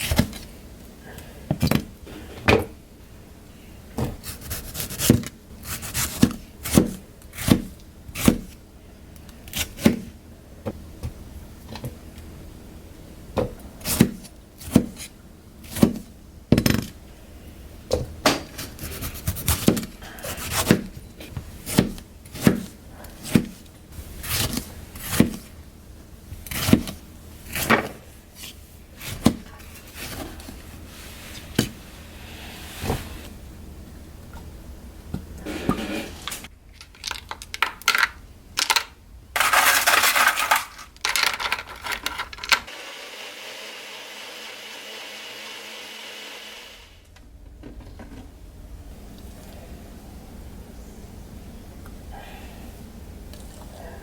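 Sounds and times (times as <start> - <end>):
knife scraping board: 32.2 - 33.3, 35.4 - 36.5.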